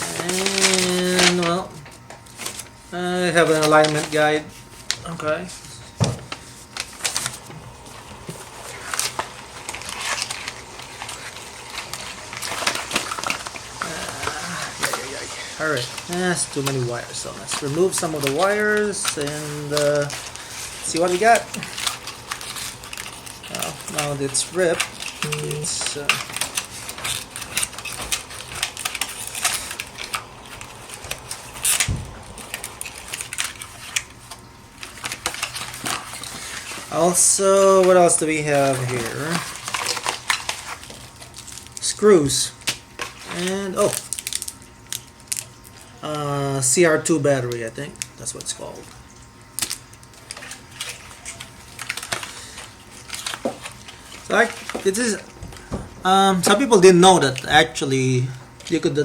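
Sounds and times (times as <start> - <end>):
packaging crinkling: 0.0 - 59.0
packaging ripped open by hand: 49.5 - 54.9.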